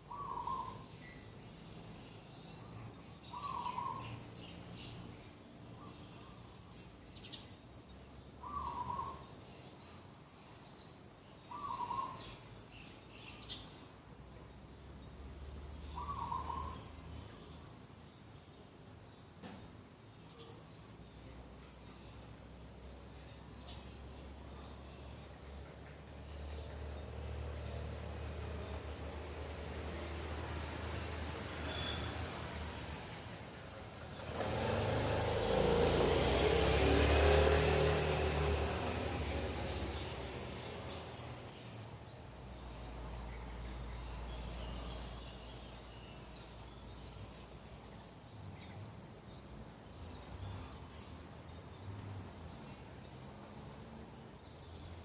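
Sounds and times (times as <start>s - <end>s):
small birds chirping: 0.0s - 55.0s
dove cooing: 16.0s - 16.8s
motor vehicle passing by: 23.4s - 55.0s.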